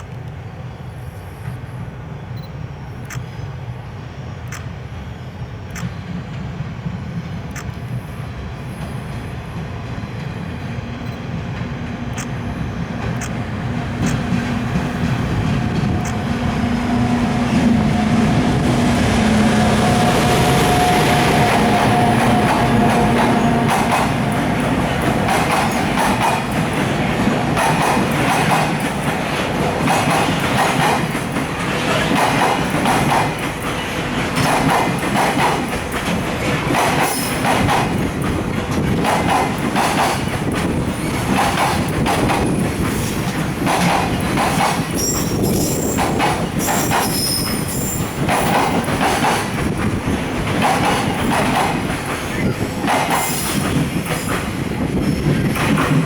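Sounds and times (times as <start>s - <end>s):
train wheels clattering over joints: 8.8s - 56.0s
high-pitched wheel squeal: 45.0s - 48.2s.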